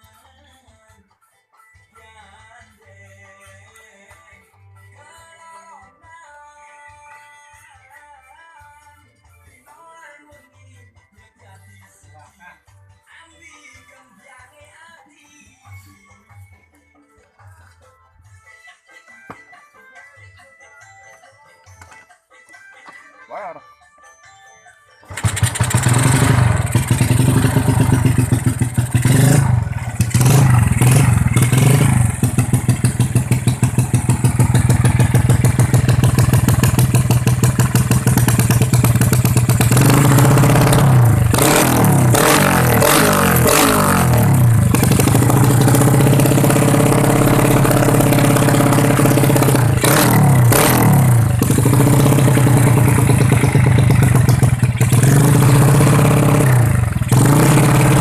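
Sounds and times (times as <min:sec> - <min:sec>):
motorcycle engine revving: 0:25.1 - 0:58.0.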